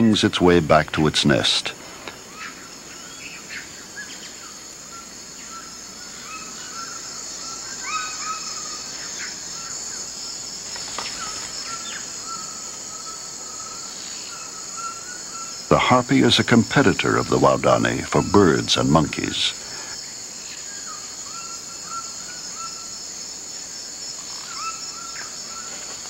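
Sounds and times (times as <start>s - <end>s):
high insect drone: 0.0s - 26.0s
bird calls and chirps: 2.1s - 15.7s, 24.2s - 26.0s.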